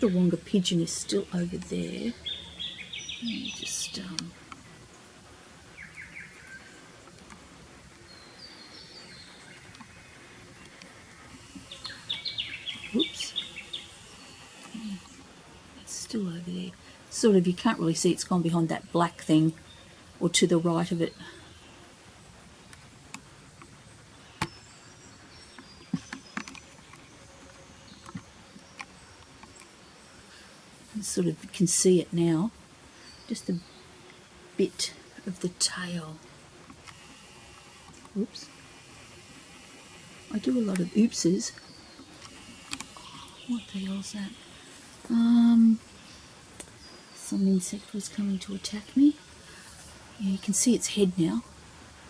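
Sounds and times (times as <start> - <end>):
faint high bird calls: 5.7 - 7.2, 8.0 - 15.8.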